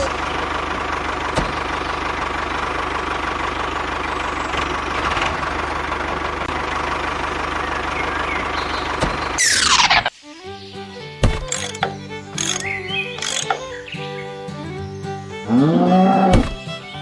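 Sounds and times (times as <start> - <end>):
tractor engine idling: 0.0 - 10.2, 10.8 - 17.0
sharp click: 11.2 - 13.7.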